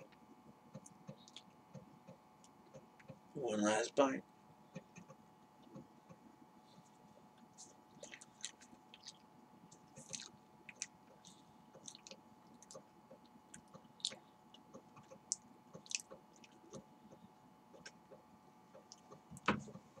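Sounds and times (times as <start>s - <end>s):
wet chewing and smacking: 0.8s - 3.2s, 7.3s - 17.2s.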